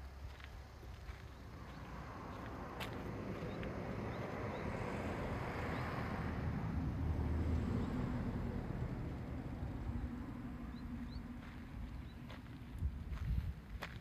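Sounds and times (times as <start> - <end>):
car engine rumbling: 0.2 - 14.0.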